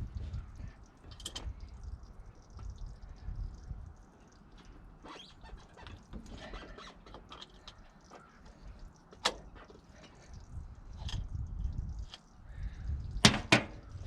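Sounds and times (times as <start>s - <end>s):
light handling clicks and scrapes: 4.4s - 12.3s.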